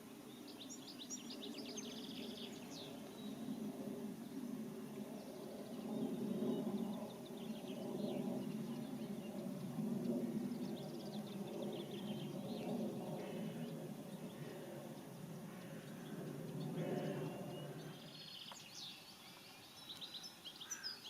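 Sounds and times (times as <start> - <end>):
small birds chirping: 0.0 - 3.7, 5.0 - 21.0
low outdoor background rumble: 0.2 - 18.4.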